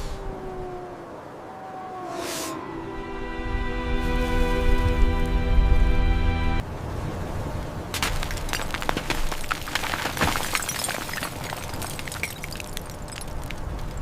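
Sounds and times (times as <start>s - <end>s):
crackling and snapping: 8.0s - 14.0s.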